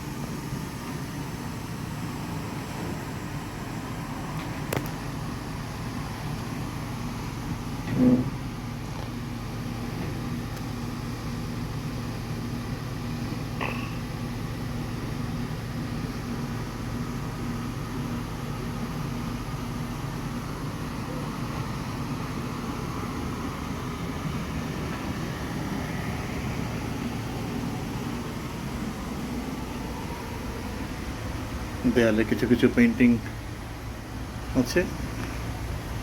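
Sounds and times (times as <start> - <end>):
ship machinery humming: 0.0 - 36.0.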